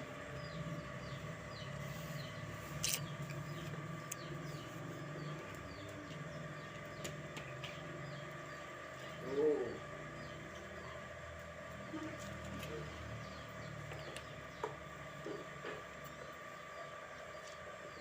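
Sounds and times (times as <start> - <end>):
small bird chirping: 0.3 - 11.1.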